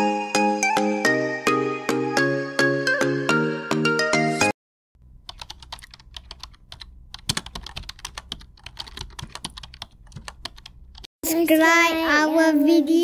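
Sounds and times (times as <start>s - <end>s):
keyboard typing clicks: 5.2s - 11.1s.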